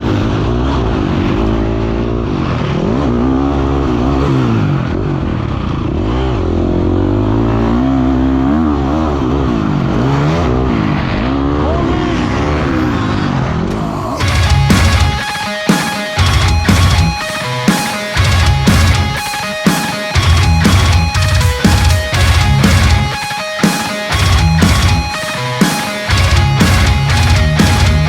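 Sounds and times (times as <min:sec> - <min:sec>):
dirt bike engine revving: 0:00.2 - 0:13.4.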